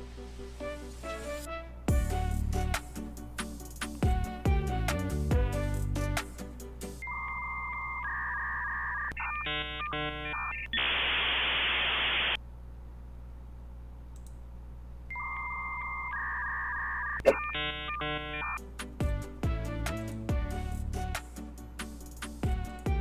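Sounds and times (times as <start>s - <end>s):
chirping modem tones: 7.0s - 12.4s, 15.1s - 18.7s.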